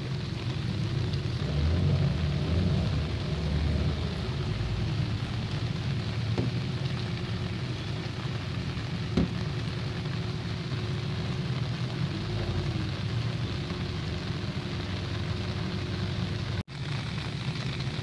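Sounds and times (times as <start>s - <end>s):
rain on an umbrella: 0.0s - 18.0s.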